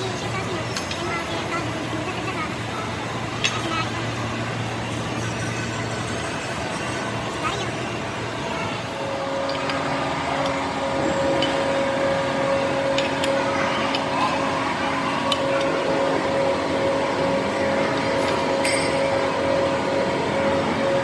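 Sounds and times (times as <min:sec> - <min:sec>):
machine humming: 0:00.0 - 0:21.0.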